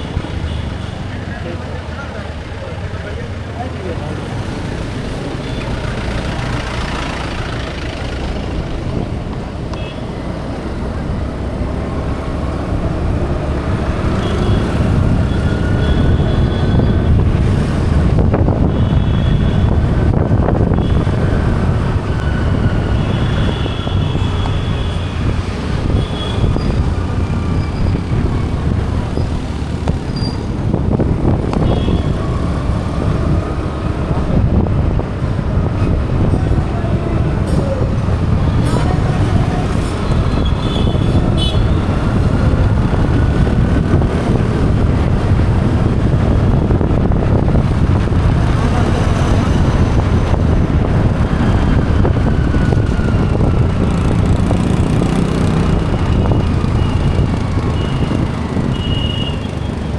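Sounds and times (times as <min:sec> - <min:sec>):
rumble of passing vehicles: 0:00.0 - 0:59.9
car horn toots: 0:40.4 - 0:41.8.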